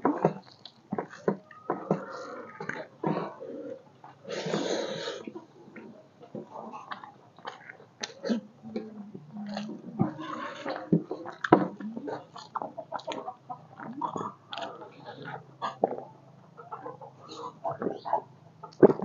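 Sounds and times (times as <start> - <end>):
man chewing food: 0.0 - 19.0
wet smacks and clicks: 6.9 - 8.2.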